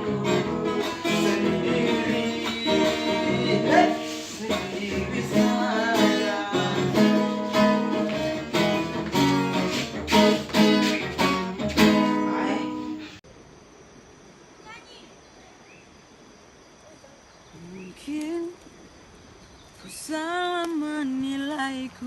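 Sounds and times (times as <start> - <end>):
acoustic guitar strumming: 0.0 - 13.2.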